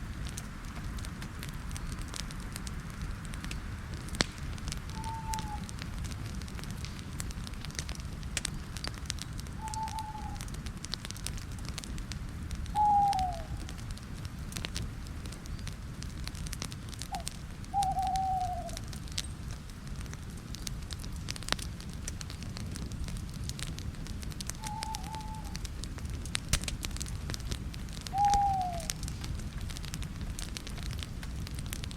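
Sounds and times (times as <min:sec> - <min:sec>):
campfire crackling and popping: 0:00.0 - 0:31.9
bird hooting: 0:05.0 - 0:05.7, 0:09.6 - 0:10.5, 0:12.8 - 0:13.6, 0:17.1 - 0:18.9, 0:24.6 - 0:25.6, 0:28.1 - 0:28.9.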